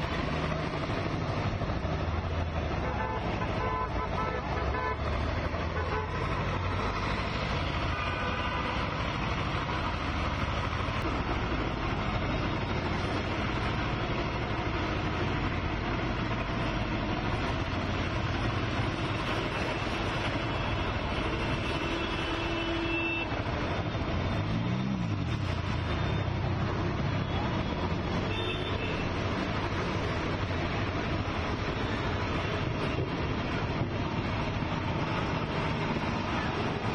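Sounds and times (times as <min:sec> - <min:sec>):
vehicle engines running: 0:00.0 - 0:36.9
car horn: 0:02.8 - 0:05.0, 0:05.7 - 0:06.9, 0:07.9 - 0:08.7, 0:21.6 - 0:23.4, 0:28.2 - 0:29.1.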